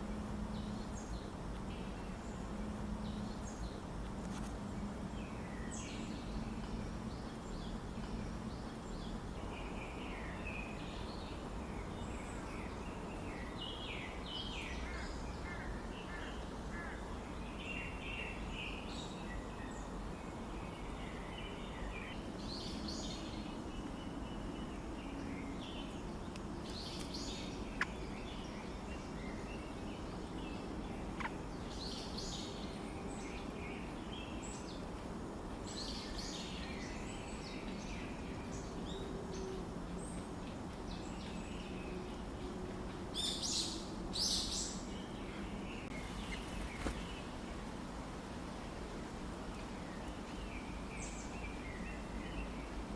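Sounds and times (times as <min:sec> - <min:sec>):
low background noise: 0:00.0 - 0:52.9
bird chirps: 0:31.1 - 0:34.8.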